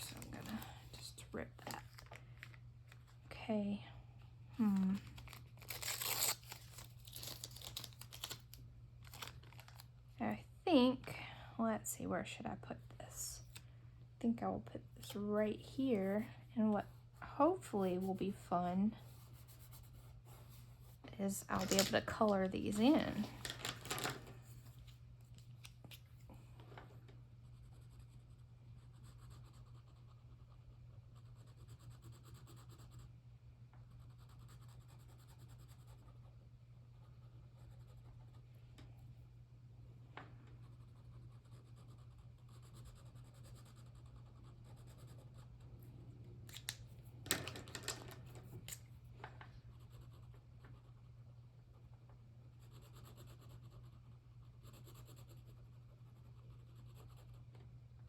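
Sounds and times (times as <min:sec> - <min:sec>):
low steady hum: 0:00.0 - 0:58.0
scratching on paper: 0:27.4 - 0:33.1, 0:33.9 - 0:36.4, 0:40.6 - 0:45.6, 0:52.6 - 0:57.5.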